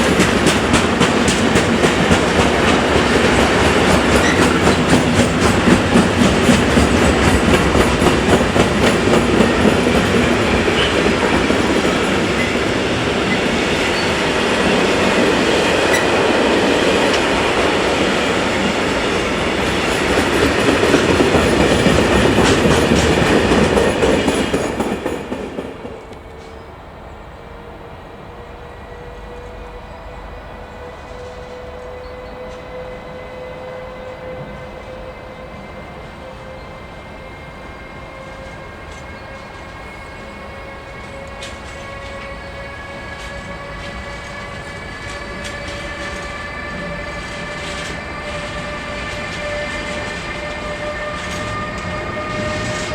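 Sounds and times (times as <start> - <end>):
train wheels clattering: 0.0 - 26.6, 38.1 - 52.9.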